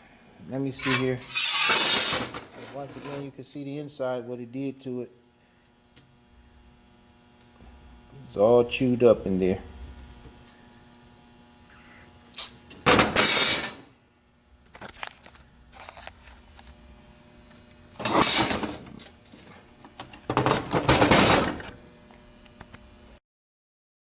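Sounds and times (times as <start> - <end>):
metal parts rattling and clattering: 12.8 - 13.8, 18.0 - 21.6.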